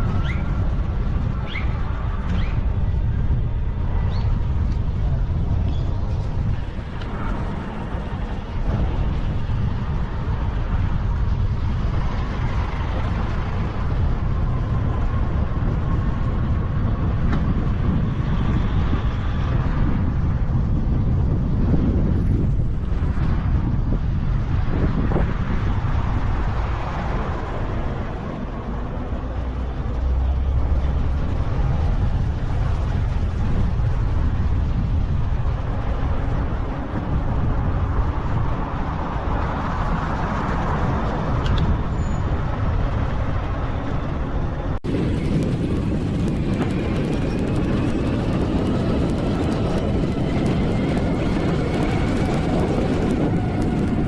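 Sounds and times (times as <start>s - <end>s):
road and traffic noise: 0.0s - 54.0s
wind rumbling on microphone: 0.0s - 54.0s
faint rising and falling whines: 44.8s - 54.0s.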